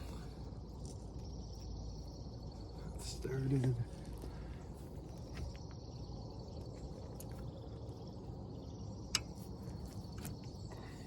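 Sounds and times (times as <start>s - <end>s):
insect drone: 0.0s - 11.0s
light clicks: 9.1s - 9.4s.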